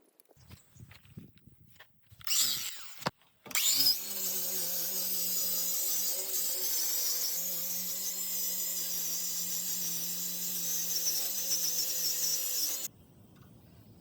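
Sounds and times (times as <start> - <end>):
power tool whining: 2.2 - 12.9.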